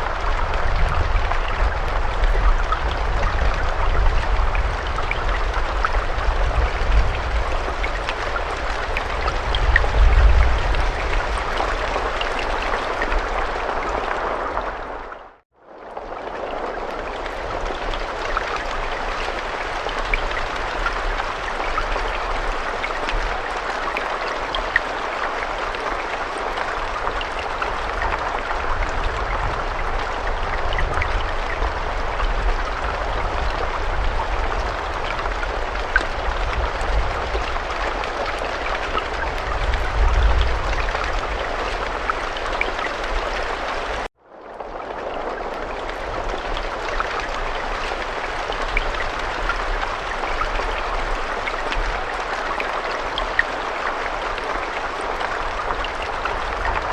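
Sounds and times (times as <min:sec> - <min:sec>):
steady rain hiss: 0:00.0 - 0:56.9
rain drop ticks: 0:15.9 - 0:56.9.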